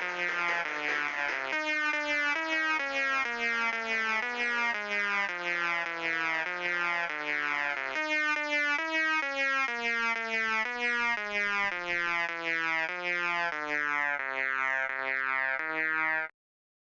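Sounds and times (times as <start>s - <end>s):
synthesizer melody: 0.0s - 16.2s.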